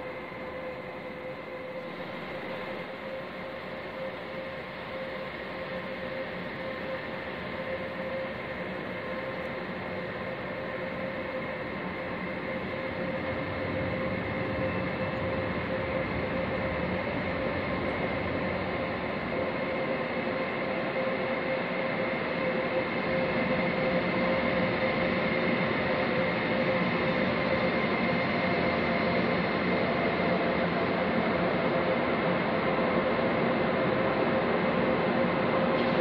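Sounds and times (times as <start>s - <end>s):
train approaching: 0.0s - 36.0s.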